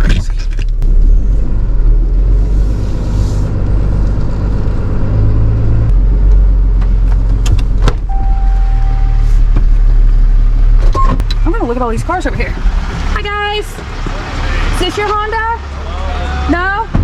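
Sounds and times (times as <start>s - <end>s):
vehicle engine rumbling: 0.0s - 17.0s
short steady tone: 8.1s - 9.6s.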